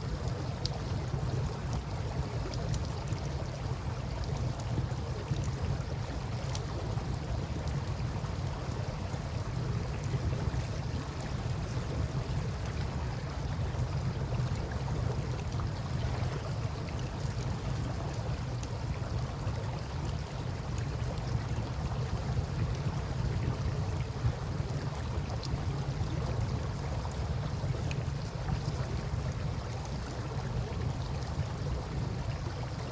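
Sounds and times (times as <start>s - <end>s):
campfire crackles: 0.0s - 32.9s.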